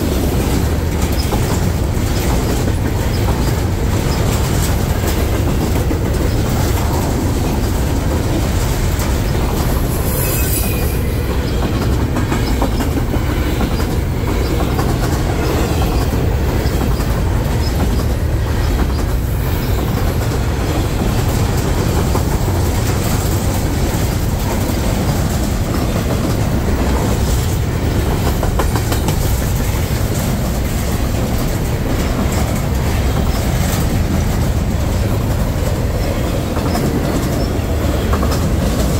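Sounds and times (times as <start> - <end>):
freight train cars rolling: 0.0 - 38.9
wheels clattering over rail joints: 0.0 - 38.9
train wheel squeal: 1.0 - 4.7, 9.0 - 21.2.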